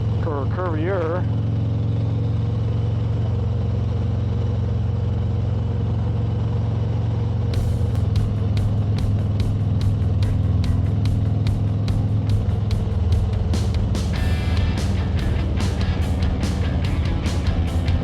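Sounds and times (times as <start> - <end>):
motorcycle engine running: 0.0 - 18.0
road and wind noise: 6.4 - 18.0
music with fast beat: 7.6 - 18.0.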